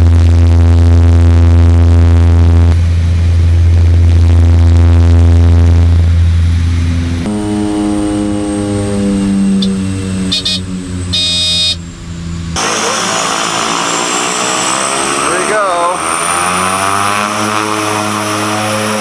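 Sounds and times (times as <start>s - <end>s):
propeller aircraft engine drone: 0.0s - 19.0s
high beeps: 10.3s - 11.8s.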